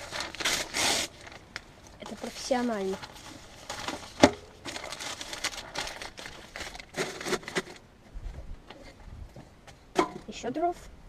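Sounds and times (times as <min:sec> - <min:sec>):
sticks rustling and clattering: 0:00.0 - 0:07.8.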